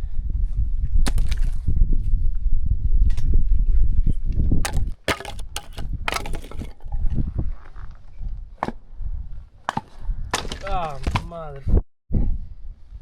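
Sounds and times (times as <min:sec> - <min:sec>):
sharp cracks and knocks: 0:04.7 - 0:06.8.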